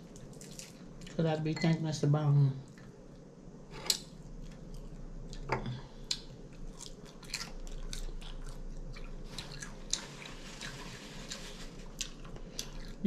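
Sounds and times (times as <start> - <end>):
person chewing: 0.0 - 1.2, 3.9 - 13.0.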